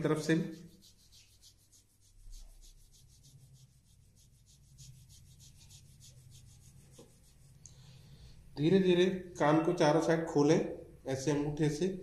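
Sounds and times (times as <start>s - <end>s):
hands rubbing skin: 0.0s - 7.8s.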